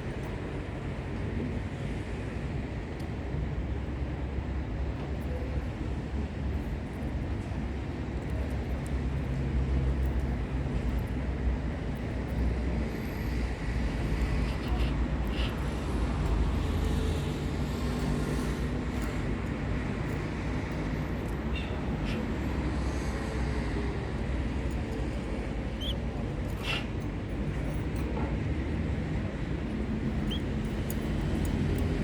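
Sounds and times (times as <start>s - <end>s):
canary chirps: 25.8s - 26.0s.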